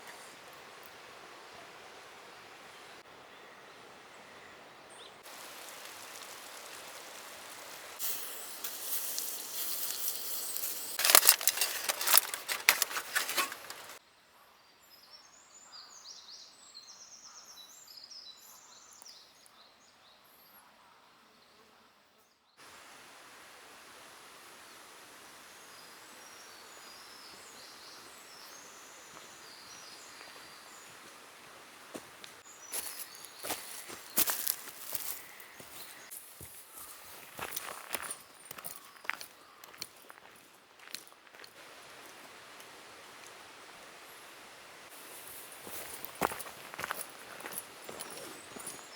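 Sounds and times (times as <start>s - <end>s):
steady rushing hiss: 5.2s - 14.0s, 41.4s - 48.9s
small birds chirping: 25.6s - 41.6s, 44.9s - 48.9s.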